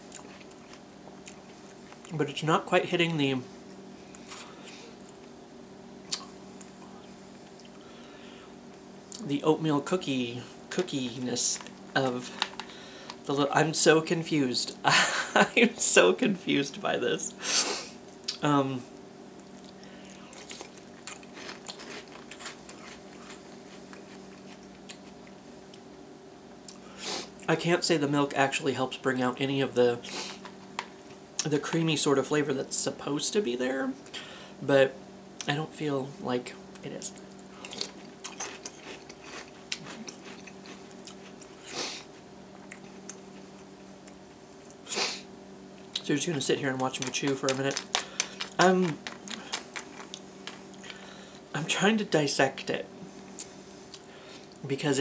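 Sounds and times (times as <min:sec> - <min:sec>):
faint hum: 0:00.0 - 0:55.0
person chewing crunchy cereal: 0:00.1 - 0:02.1, 0:19.6 - 0:25.4, 0:37.5 - 0:44.8, 0:46.0 - 0:51.4.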